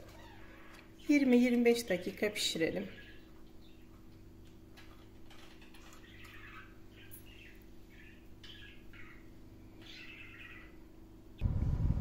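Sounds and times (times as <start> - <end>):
bird chirping: 2.9 - 4.1, 5.4 - 10.8
low hum: 6.3 - 12.0.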